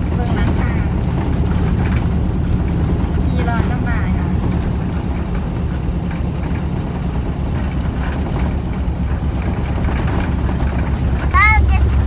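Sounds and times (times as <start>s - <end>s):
engine and road drone: 0.0s - 12.0s.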